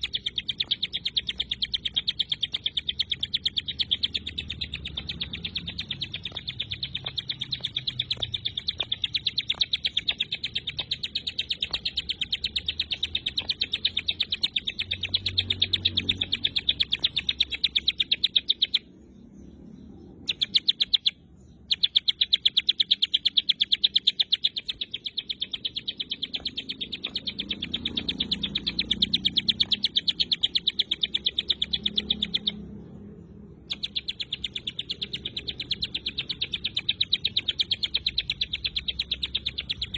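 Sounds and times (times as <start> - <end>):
bird singing rapid high notes: 0.0 - 39.9.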